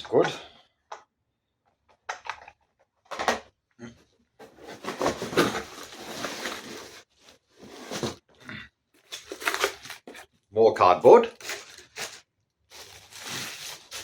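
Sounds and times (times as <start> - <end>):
packing material rustling: 4.4 - 8.2, 9.0 - 10.3, 11.4 - 14.0.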